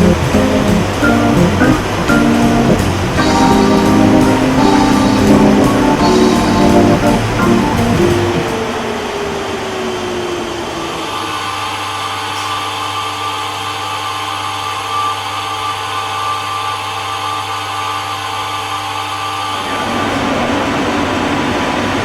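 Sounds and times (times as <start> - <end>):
tone sliding downward: 0.0 - 9.8
machine humming and hissing: 0.0 - 22.0.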